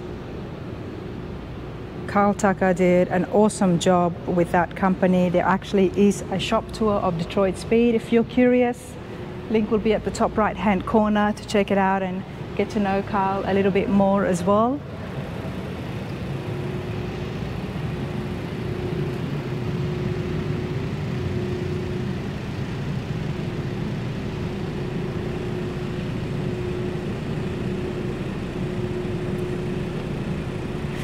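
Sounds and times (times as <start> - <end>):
low building hum: 0.0 - 31.0.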